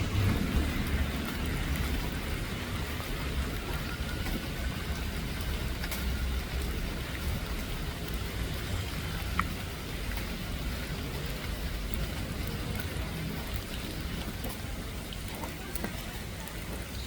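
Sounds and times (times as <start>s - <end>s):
low rumble: 0.0s - 3.6s
heavy rain falling: 0.0s - 17.0s
sharp drip-like clicks: 0.0s - 17.0s.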